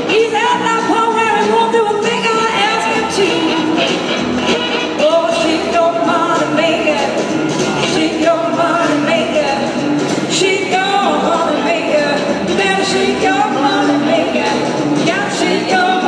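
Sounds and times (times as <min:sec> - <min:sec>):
blues-rock band playing: 0:00.0 - 0:16.0
person singing: 0:04.8 - 0:16.0.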